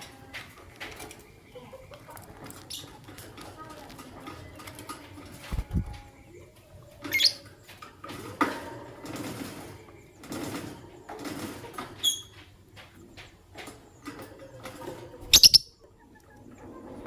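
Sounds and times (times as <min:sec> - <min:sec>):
lovebirds chirping: 0:04.0 - 0:07.7, 0:15.2 - 0:17.0.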